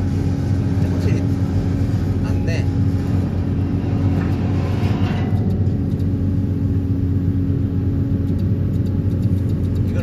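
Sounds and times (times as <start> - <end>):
excavator engine under load: 0.0 - 10.0
vibro hammer driving steel pile: 2.3 - 6.5.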